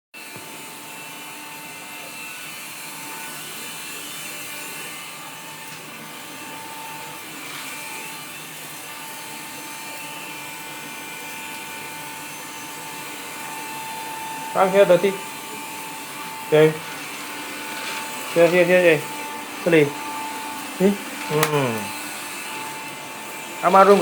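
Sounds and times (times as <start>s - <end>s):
vacuum cleaner running: 0.2s - 24.0s.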